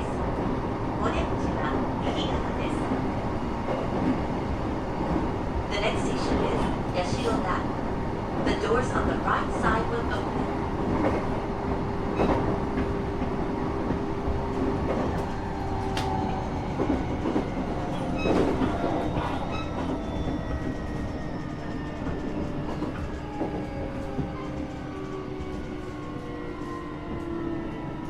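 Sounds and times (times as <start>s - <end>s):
train wheels rumbling on track: 0.0s - 28.0s.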